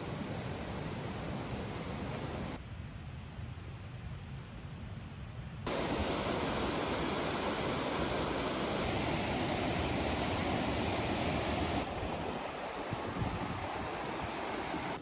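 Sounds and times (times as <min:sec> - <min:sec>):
rushing water: 0:05.7 - 0:15.0.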